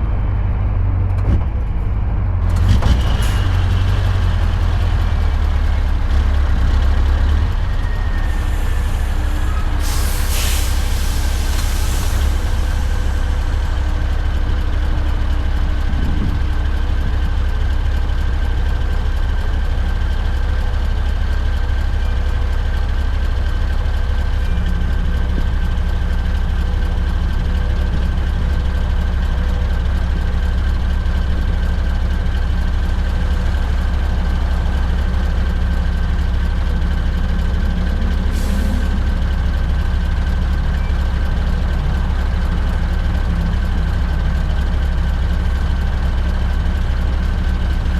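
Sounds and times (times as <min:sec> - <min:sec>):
diesel truck engine rumbling: 0:00.0 - 0:47.9
compressed air hiss: 0:08.4 - 0:13.4.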